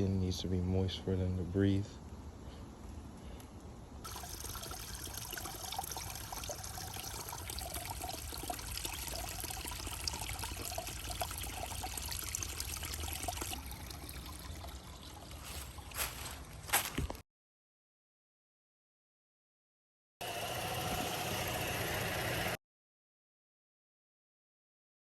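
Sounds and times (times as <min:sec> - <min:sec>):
small water drips: 0:04.0 - 0:16.6
water trickling and splashing: 0:04.0 - 0:17.2.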